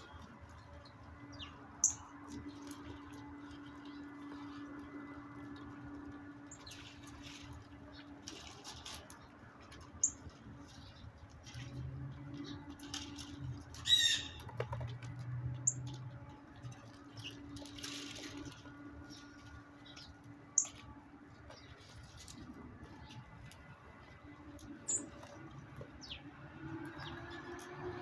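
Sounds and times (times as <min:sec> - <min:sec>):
wing flutter: 0:12.4 - 0:26.0
high bird chirps: 0:13.8 - 0:14.4
rattling bird call: 0:13.8 - 0:14.5.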